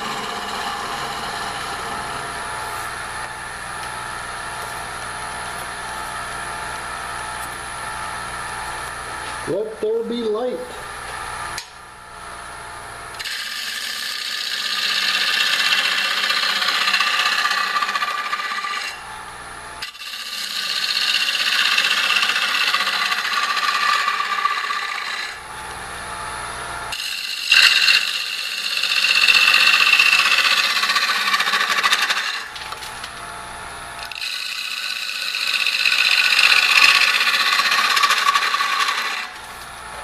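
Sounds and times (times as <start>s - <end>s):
gouge cutting wood on a lathe: 0.0s - 3.7s, 13.2s - 19.1s, 19.8s - 25.6s, 26.9s - 33.2s, 34.0s - 39.5s
lathe humming: 0.0s - 40.0s.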